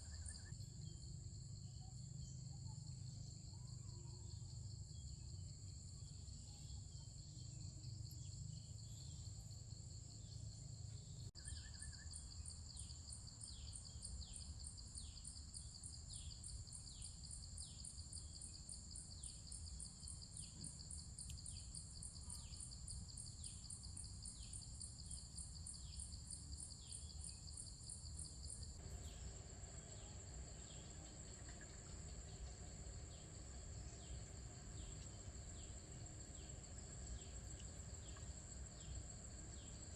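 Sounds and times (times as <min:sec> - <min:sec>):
insects trilling: 0:05.8 - 0:39.9
fast pulsing insect call: 0:11.3 - 0:39.9.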